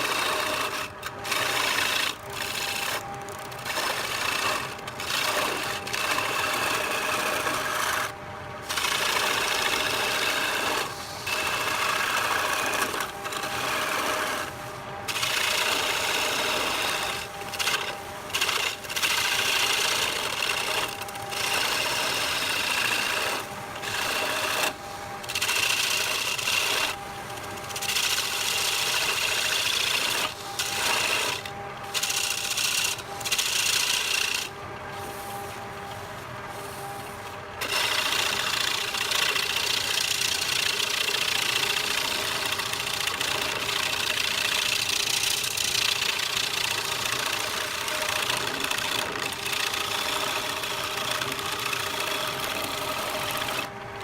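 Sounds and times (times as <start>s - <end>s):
lathe tool scraping wood: 0.0s - 53.7s
lathe motor whine: 0.0s - 54.0s.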